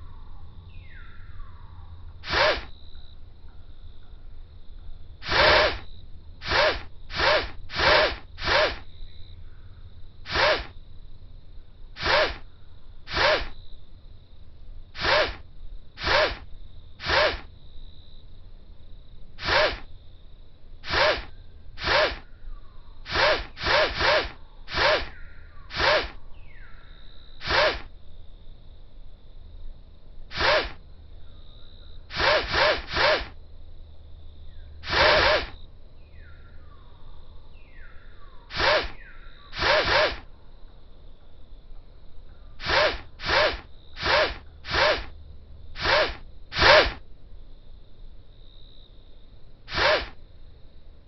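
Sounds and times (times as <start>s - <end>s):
short noisy game bursts: 2.2s - 2.7s, 5.2s - 8.8s, 10.3s - 10.8s, 12.0s - 12.4s, 13.1s - 13.6s, 15.0s - 15.4s, 16.0s - 16.4s, 17.0s - 17.5s, 19.4s - 19.9s, 20.8s - 22.2s, 23.1s - 25.1s, 25.7s - 26.2s, 27.4s - 27.9s, 30.3s - 30.8s, 32.1s - 33.4s, 34.8s - 35.6s, 38.5s - 40.2s, 42.6s - 45.1s, 45.8s - 47.0s, 49.7s - 50.2s.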